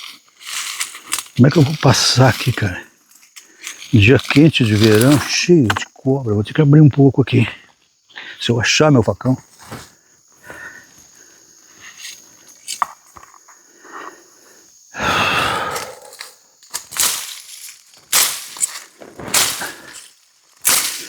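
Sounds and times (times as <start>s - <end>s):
rustle of vegetation: 0.0s - 5.6s, 9.4s - 10.3s, 16.0s - 21.0s
high insect buzz: 0.0s - 21.0s.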